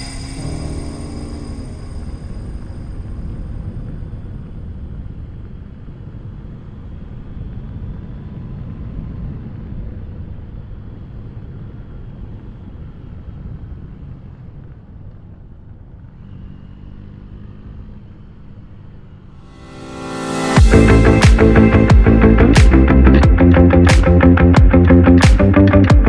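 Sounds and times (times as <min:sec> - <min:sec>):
motorcycle engine running: 0:20.4 - 0:26.0.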